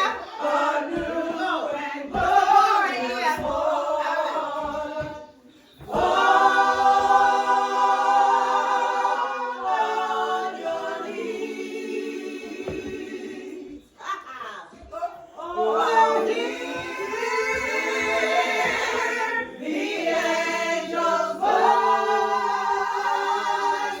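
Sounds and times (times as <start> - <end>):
voices singing unaccompanied: 0.0 - 24.0.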